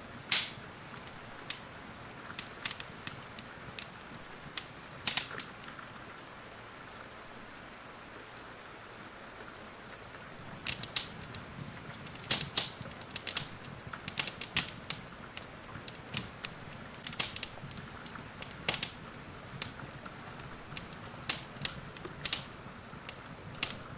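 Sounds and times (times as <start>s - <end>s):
rain hiss: 0.0s - 23.9s
wood fire crackling and popping: 0.2s - 5.8s, 10.4s - 23.9s.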